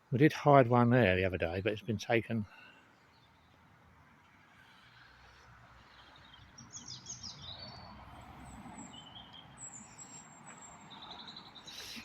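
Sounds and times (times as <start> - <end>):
birds chirping: 0.2 - 3.8, 4.5 - 12.0.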